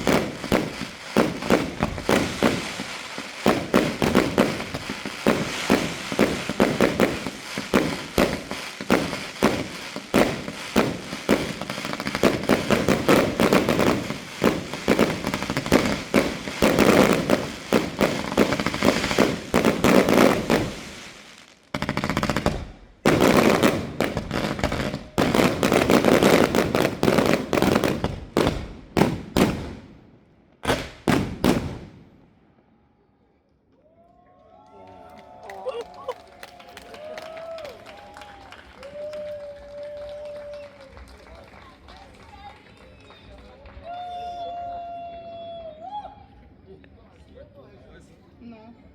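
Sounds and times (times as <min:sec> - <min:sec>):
fireworks bangs and crackles: 0:00.0 - 0:32.3, 0:37.5 - 0:44.0.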